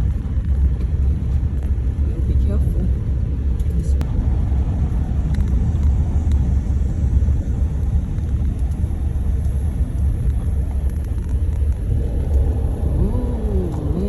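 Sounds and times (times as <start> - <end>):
vehicle road and engine noise: 0.0 - 14.0.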